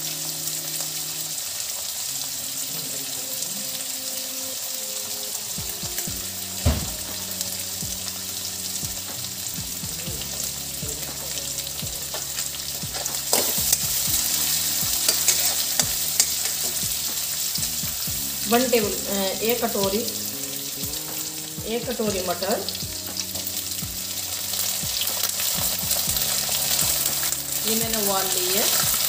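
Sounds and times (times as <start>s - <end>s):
food sizzling in oil: 0.0s - 29.0s
sharp knock: 6.6s - 7.0s
spoon scraping and clinking on wok: 15.0s - 16.8s.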